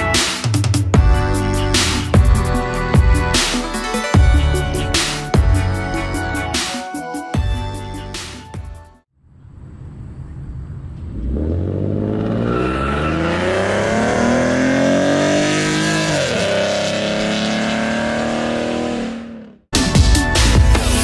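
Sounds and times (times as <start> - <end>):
car engine accelerating hard: 10.9 - 19.7.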